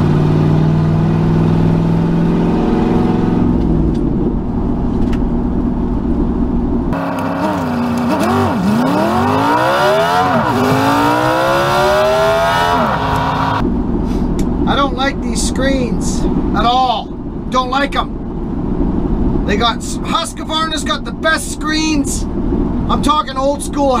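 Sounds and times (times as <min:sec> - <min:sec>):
vehicle engine revving through gears: 0:00.0 - 0:04.3, 0:06.9 - 0:13.6.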